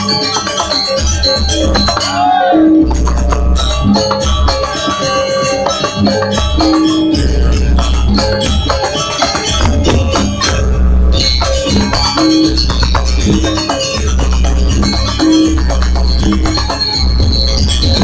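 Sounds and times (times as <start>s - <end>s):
percussion and pitched instruments: 0.0s - 18.0s
pulsing low bass: 2.8s - 4.8s, 6.0s - 18.0s.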